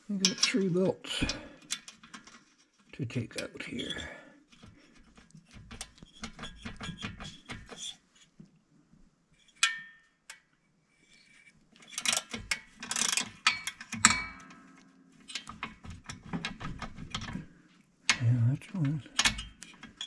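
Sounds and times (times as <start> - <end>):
tools and parts clattering: 18.2 - 20.0.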